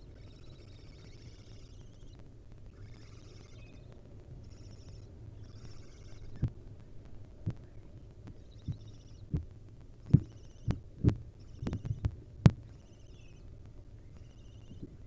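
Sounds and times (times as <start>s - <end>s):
small birds twittering: 0.0s - 6.6s, 7.4s - 15.0s
dull thumps and knocks: 10.1s - 12.6s.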